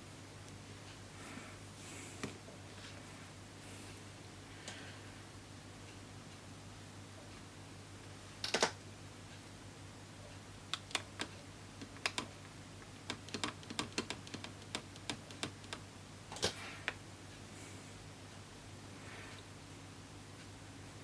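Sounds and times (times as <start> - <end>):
small parts clicking and tapping: 10.7 - 17.0.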